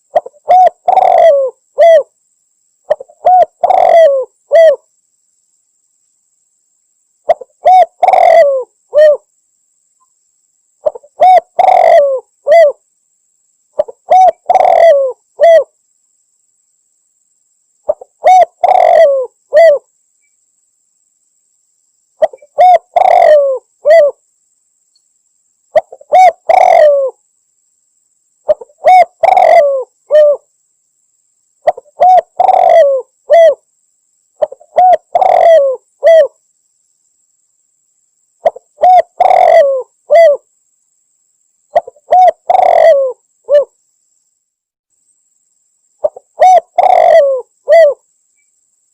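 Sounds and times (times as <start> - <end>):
dove cooing: 0.0 - 2.1, 2.9 - 4.8, 7.3 - 9.3, 10.8 - 12.8, 13.8 - 15.7, 17.9 - 19.9, 22.2 - 24.2, 25.8 - 27.2, 28.5 - 30.5, 31.6 - 33.6, 34.4 - 36.4, 38.4 - 40.5, 41.7 - 43.7, 46.0 - 48.0.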